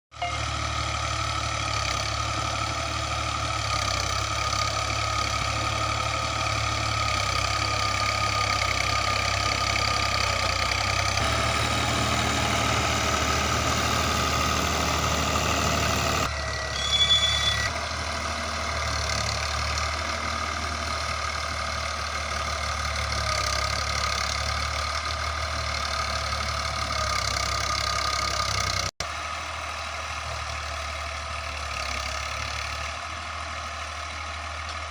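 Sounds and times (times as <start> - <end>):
brief high-pitched tone: 0.1 - 0.6, 16.3 - 17.7
tractor diesel engine running: 0.1 - 34.9.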